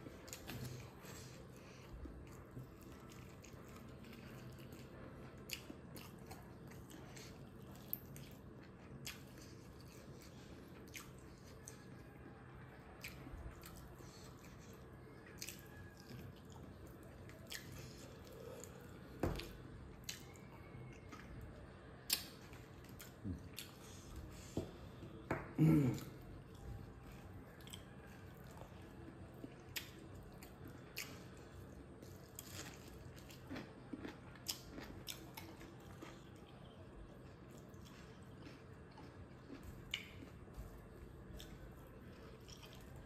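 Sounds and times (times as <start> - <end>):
faint chewing: 0.0 - 43.0.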